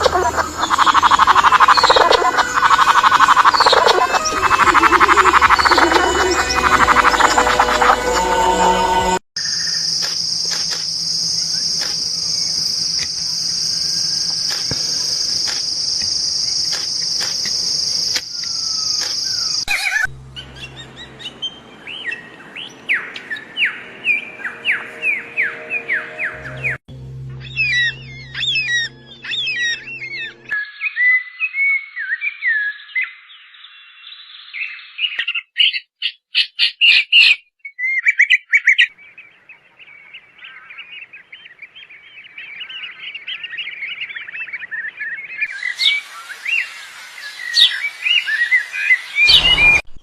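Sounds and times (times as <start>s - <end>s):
fast bird chirping: 0.0s - 7.8s
bird rising-and-falling notes: 0.0s - 9.8s, 19.7s - 30.6s, 45.0s - 50.0s.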